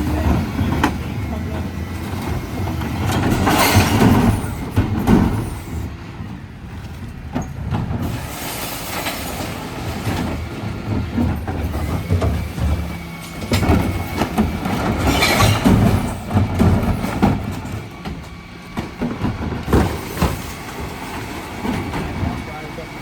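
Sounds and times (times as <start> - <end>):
refuse lorry engine rumble: 0.0 - 23.0
sharp metal clanks and knocks: 13.5 - 17.8.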